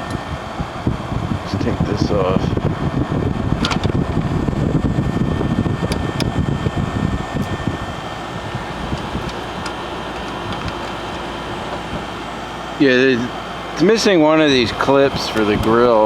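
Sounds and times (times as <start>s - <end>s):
air conditioner fan blowing: 0.0s - 16.0s
plastic grille clicks: 8.8s - 12.0s.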